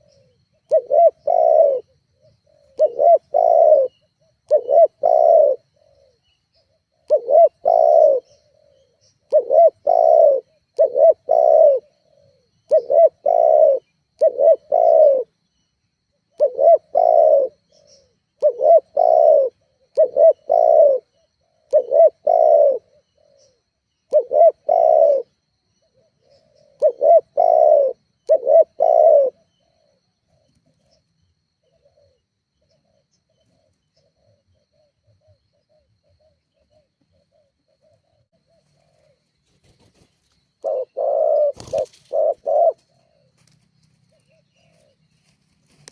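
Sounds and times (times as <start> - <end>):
dove cooing: 0.0 - 15.4, 16.2 - 31.0, 31.6 - 45.9.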